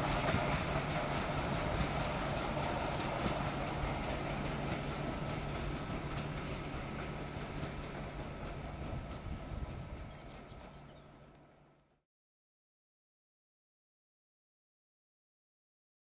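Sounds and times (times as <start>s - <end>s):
train wheels rumbling on rail: 0.0s - 11.8s.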